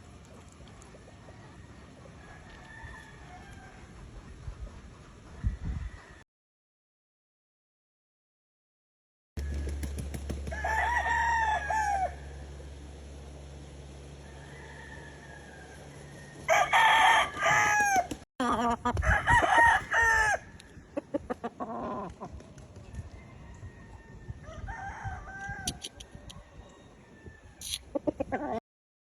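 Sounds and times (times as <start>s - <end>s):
roosters crowing: 1.1s - 4.0s, 9.4s - 22.1s, 23.0s - 28.6s
short clicks and clucks: 25.4s - 26.4s, 27.6s - 28.2s.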